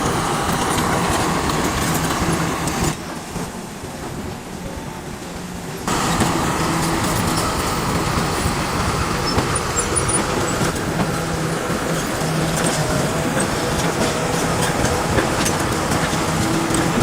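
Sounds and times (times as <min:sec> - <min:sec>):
machinery rattling: 0:00.0 - 0:04.5, 0:05.5 - 0:17.0
bulldozer diesel engine running: 0:05.8 - 0:17.0.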